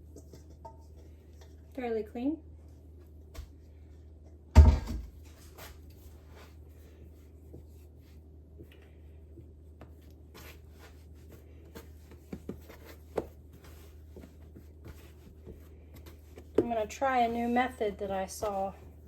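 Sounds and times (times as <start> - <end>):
heavy thump on countertop: 4.6 - 5.1
dough rubbing and scraping: 5.2 - 19.0.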